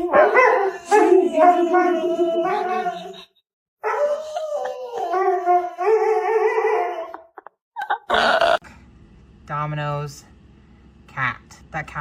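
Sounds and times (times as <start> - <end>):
dog howling: 0.0 - 7.4.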